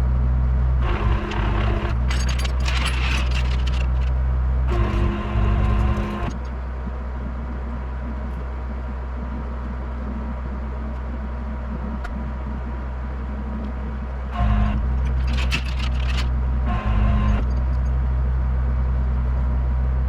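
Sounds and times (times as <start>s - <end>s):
truck engine running: 0.0s - 8.1s, 12.2s - 18.1s.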